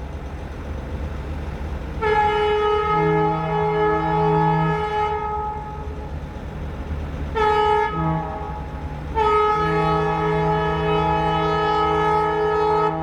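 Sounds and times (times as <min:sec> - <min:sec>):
low engine rumble: 0:00.0 - 0:13.0
locomotive air horn blasts: 0:02.0 - 0:05.8, 0:07.4 - 0:13.0.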